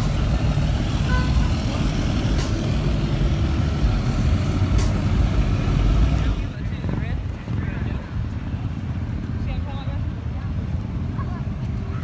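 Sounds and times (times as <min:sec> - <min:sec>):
truck engine rumbling: 0:00.0 - 0:09.5.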